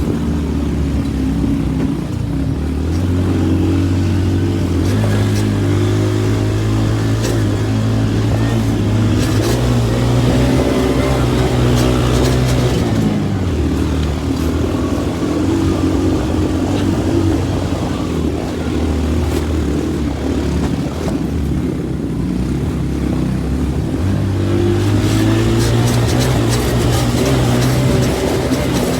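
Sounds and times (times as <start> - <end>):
motorcycle engine running hard: 0.0 - 28.9
clatters and knocks: 24.9 - 28.9.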